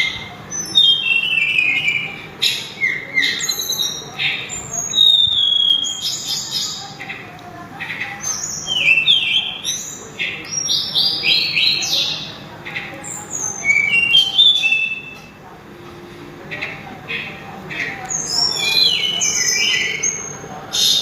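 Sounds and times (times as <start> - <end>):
songbird whistling: 0.0 - 6.9, 8.2 - 12.3, 13.0 - 15.3, 18.1 - 21.0.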